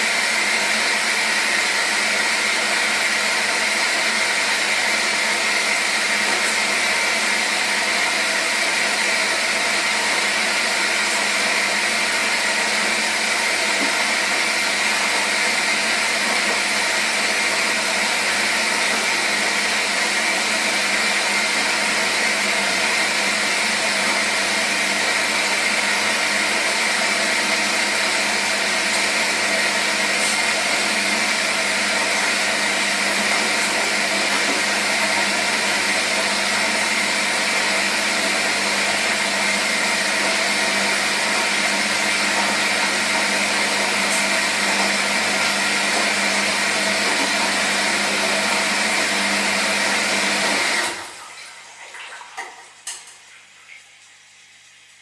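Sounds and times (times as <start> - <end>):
washing machine running: 0.0 - 55.0.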